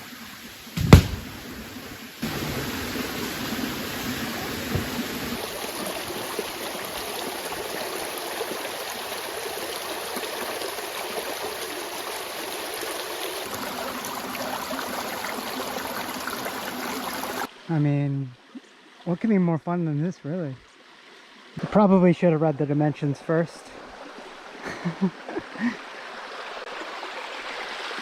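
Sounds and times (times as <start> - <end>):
creek water flowing: 0.0 - 28.0
small knocks: 0.8 - 1.4, 4.6 - 5.4.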